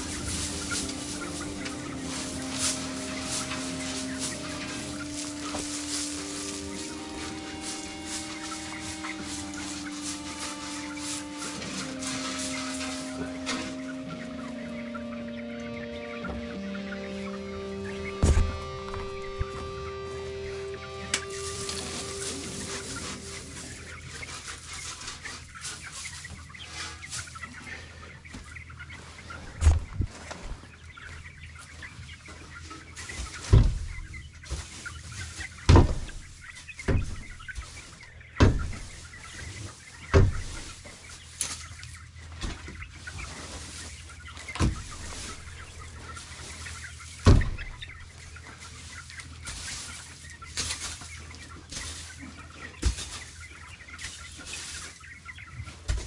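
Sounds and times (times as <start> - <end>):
chickens clucking: 0.0 - 56.0
heavy thumps: 18.2 - 19.7.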